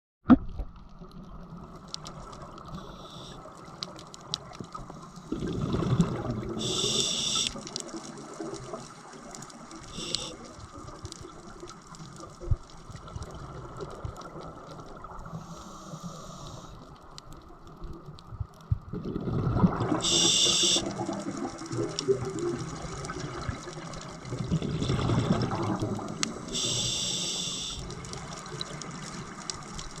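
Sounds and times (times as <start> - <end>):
steady underwater noise: 0.2 - 30.0
exhaled bubbles rumbling: 0.3 - 15.6, 17.5 - 30.0
regulator inhalation hiss: 2.8 - 3.4, 6.6 - 7.6, 9.9 - 10.5, 15.3 - 16.8, 20.0 - 20.9, 26.4 - 28.0.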